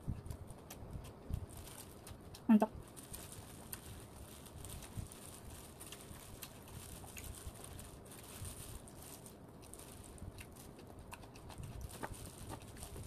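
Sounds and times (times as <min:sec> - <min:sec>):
person chewing food: 0:09.6 - 0:13.0.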